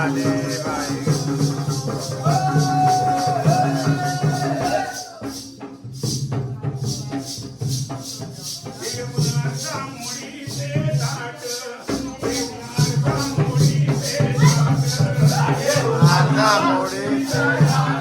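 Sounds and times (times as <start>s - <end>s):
person singing: 0.0s - 5.1s, 10.0s - 18.0s
jingling metal percussion: 0.0s - 18.0s.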